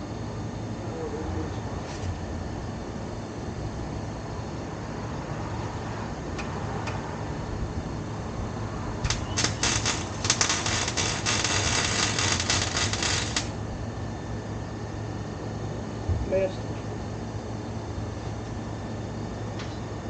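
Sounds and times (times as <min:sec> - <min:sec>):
steady low hum: 0:00.0 - 0:20.0
welder crackling: 0:09.0 - 0:13.6.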